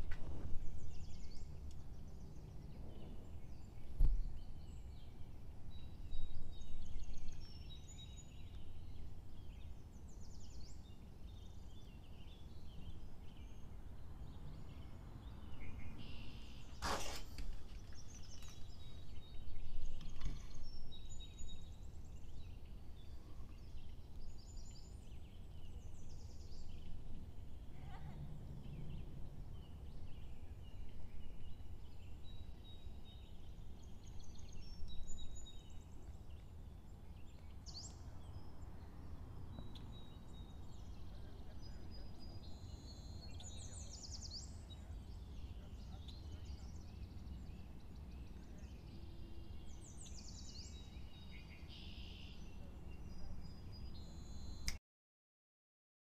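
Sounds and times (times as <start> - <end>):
small birds chirping: 0.0 - 54.8
low steady rumble: 18.0 - 34.3.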